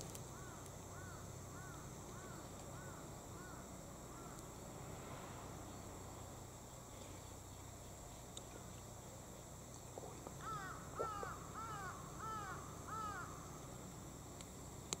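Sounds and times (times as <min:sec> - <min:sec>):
bird calling: 0:10.4 - 0:13.5.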